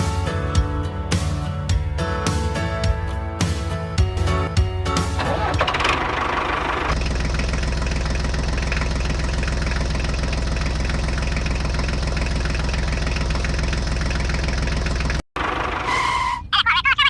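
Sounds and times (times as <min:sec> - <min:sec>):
tractor engine idling: 0:04.9 - 0:16.8.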